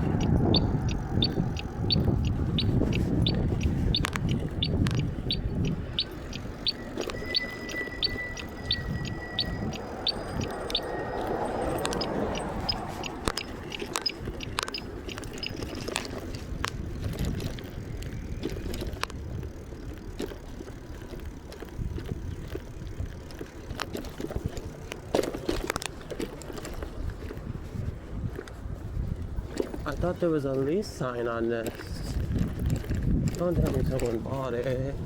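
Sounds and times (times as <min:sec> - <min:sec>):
wind rushing: 0:00.0 - 0:19.6
bicycle tyre rumble: 0:00.0 - 0:35.0
bike clicking and rattling: 0:00.0 - 0:35.0.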